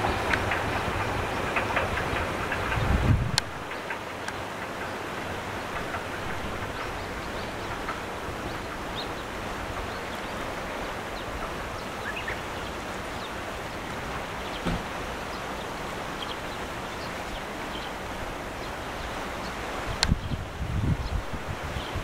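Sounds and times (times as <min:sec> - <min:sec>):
electric train rushing along track: 0:00.0 - 0:22.0
bird chirps: 0:12.0 - 0:12.7.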